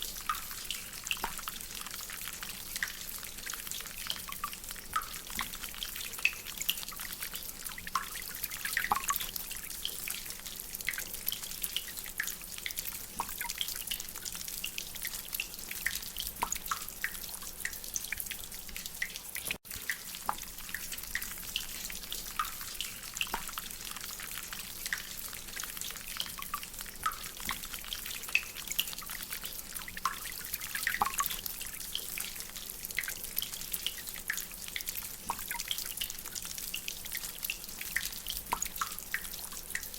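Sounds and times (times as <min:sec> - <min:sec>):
steady hiss of rain: 0:00.0 - 0:39.9
water drops from drainpipe: 0:07.8 - 0:09.4, 0:15.0 - 0:23.7, 0:29.9 - 0:31.5, 0:32.9 - 0:36.4, 0:37.4 - 0:39.9.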